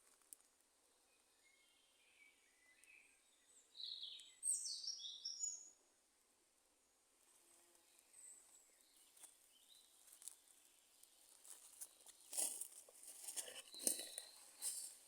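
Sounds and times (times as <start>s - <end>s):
faint bird chirping: 0.8s - 5.9s, 13.3s - 15.0s.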